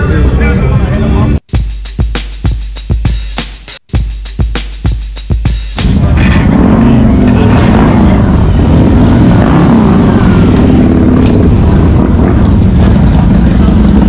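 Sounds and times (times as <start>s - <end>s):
motorcycle engine running: 3.9s - 14.0s.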